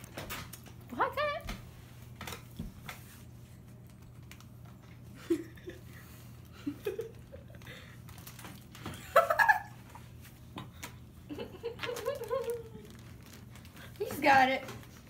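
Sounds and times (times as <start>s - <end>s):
person giggling: 5.2s - 7.9s, 8.9s - 10.0s, 11.3s - 12.9s
dog licking a bag: 6.1s - 8.9s, 11.8s - 15.0s.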